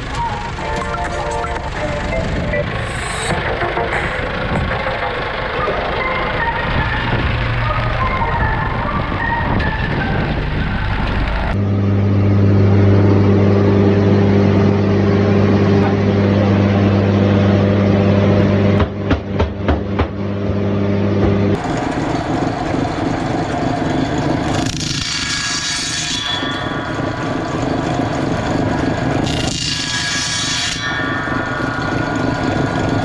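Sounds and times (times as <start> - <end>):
motor humming: 0.0 - 25.6
noisy machine running: 0.0 - 33.0
high hissing cutting noise: 2.7 - 4.3
sharp wooden knocks: 18.8 - 20.2.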